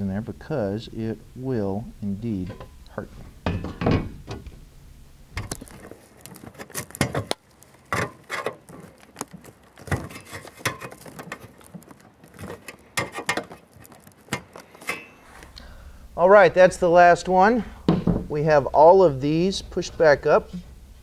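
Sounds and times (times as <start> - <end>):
pliers scraping metal: 5.4 - 15.6.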